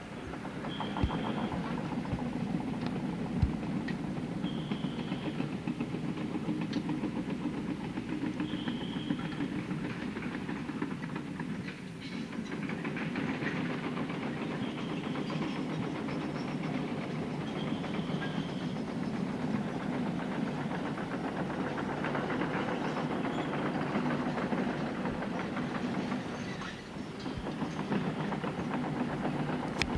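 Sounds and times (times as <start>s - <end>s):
diesel boat engine running: 0.0s - 10.9s, 14.0s - 29.9s.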